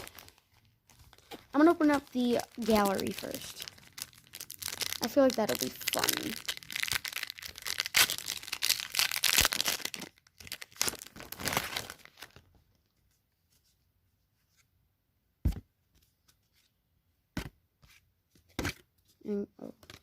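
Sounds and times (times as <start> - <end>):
wrapper tearing and crinkling: 0.0 - 12.4.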